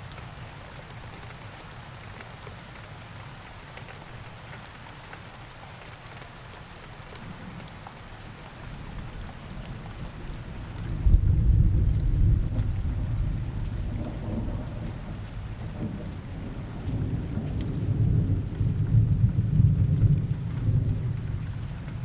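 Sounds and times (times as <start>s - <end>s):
steady rain: 0.0s - 22.0s
rolling thunder: 10.0s - 21.6s.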